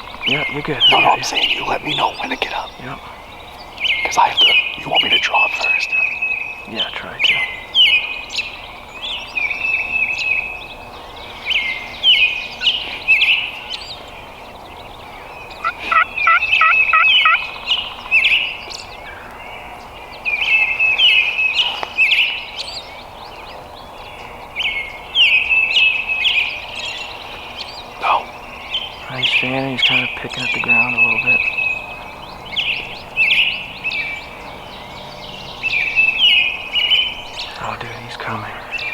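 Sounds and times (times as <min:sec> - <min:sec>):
turkey gobbling: 0:00.0 - 0:08.6, 0:15.0 - 0:19.4
small songbirds calling: 0:00.0 - 0:38.9.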